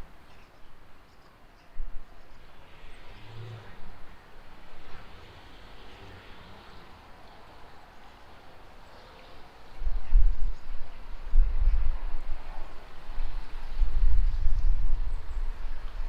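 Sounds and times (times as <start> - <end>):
faint traffic rumble: 0.0 - 16.0
rain hiss: 2.4 - 9.8.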